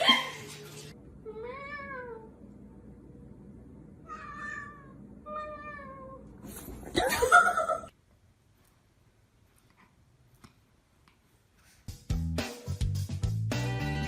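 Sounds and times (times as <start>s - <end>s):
cat meowing: 4.0s - 6.2s.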